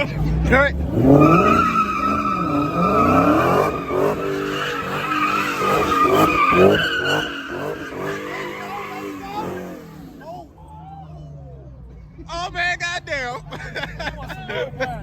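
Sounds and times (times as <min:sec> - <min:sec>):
car engine revving: 0:00.0 - 0:10.6
tyre screech: 0:00.9 - 0:10.4.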